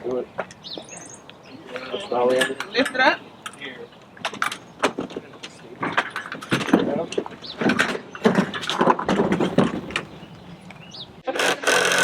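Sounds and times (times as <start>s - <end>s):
parts clinking and knocking: 2.3s - 10.8s.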